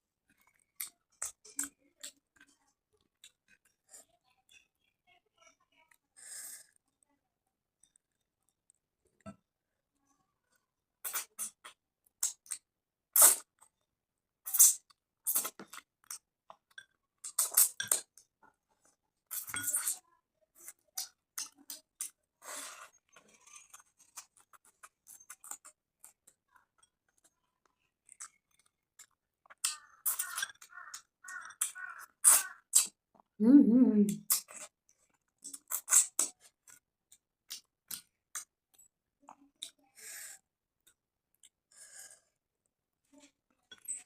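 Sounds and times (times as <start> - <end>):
person chewing food: 0.3 - 3.8, 11.0 - 13.8, 14.5 - 18.6, 20.6 - 33.3, 34.2 - 39.8.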